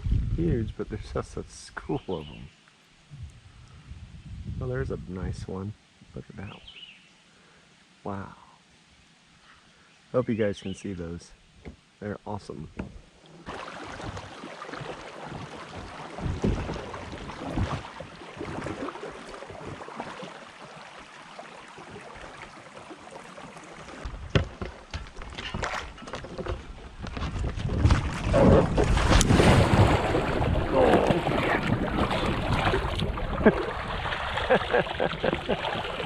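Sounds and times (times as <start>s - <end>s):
water splashing around kayak: 12.8s - 36.0s
knocks and handling noise: 24.0s - 28.2s.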